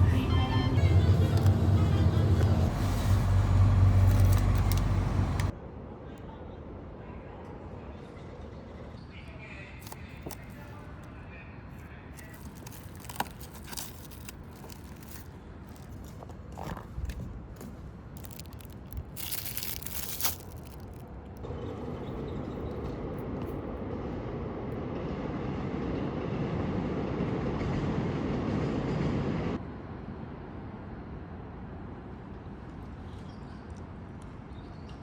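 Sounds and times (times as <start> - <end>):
sharp crinkles and clicks: 2.8 - 5.5, 9.8 - 10.9, 12.2 - 21.5.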